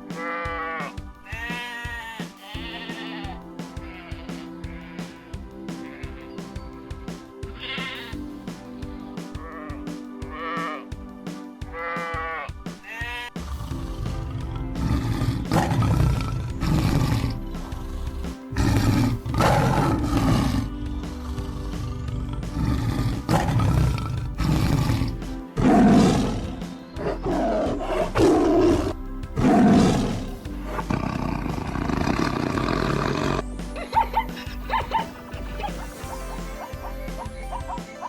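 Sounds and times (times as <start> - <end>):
background music: 0.0 - 38.0
tiger roaring and growling: 13.4 - 37.8.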